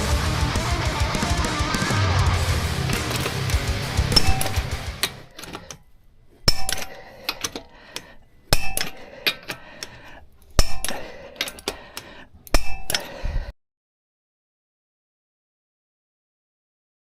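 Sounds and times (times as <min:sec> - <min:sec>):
sharp metallic clanks: 0:02.8 - 0:05.8, 0:06.4 - 0:07.7, 0:08.5 - 0:09.6, 0:10.5 - 0:11.8, 0:12.5 - 0:13.2.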